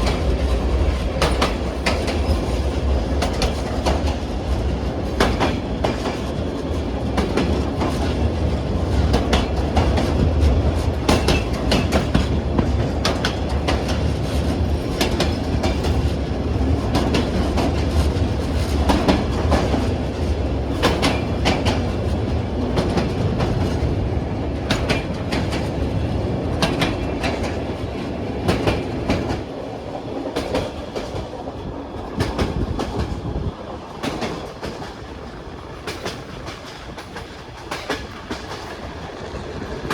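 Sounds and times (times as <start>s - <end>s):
train wheels clacking on rails: 0.0s - 39.9s.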